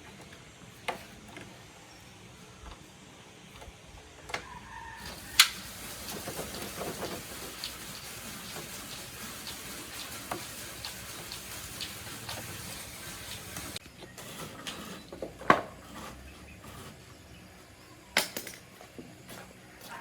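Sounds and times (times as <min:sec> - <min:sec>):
steady hiss: 0:05.0 - 0:13.8.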